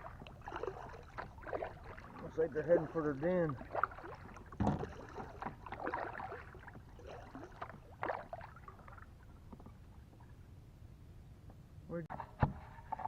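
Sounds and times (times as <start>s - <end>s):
paddle splashing in water: 0.0s - 10.4s.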